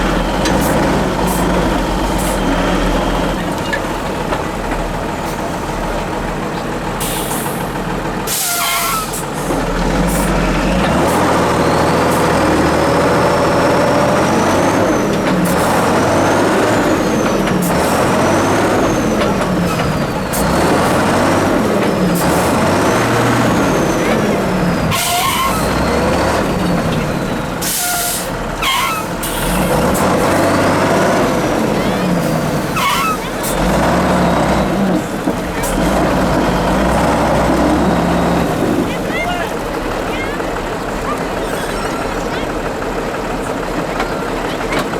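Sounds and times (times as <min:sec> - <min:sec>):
truck engine revving: 0:00.0 - 0:44.9
air brake hisses: 0:07.0 - 0:07.7, 0:08.3 - 0:09.4, 0:27.6 - 0:29.7.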